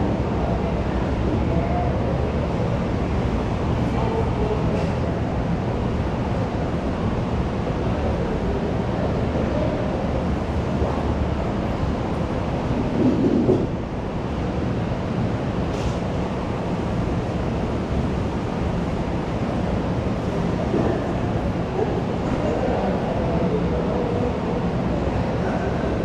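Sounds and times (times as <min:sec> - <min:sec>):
muffled school canteen hubbub: 0:00.0 - 0:13.8, 0:19.1 - 0:26.0.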